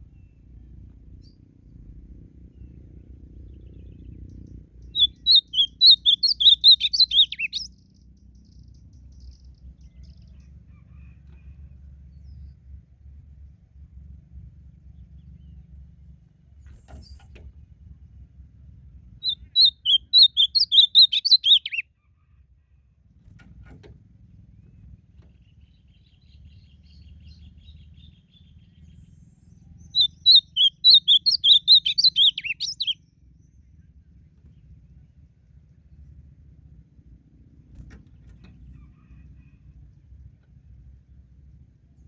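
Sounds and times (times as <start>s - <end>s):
bird singing warbled notes: 3.4s - 7.7s, 19.2s - 21.8s, 29.8s - 33.1s.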